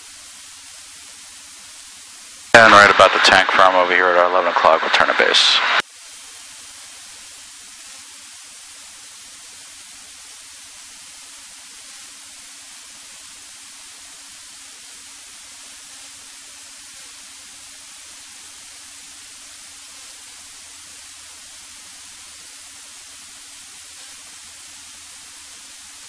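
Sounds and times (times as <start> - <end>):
static hiss: 0.0 - 26.0.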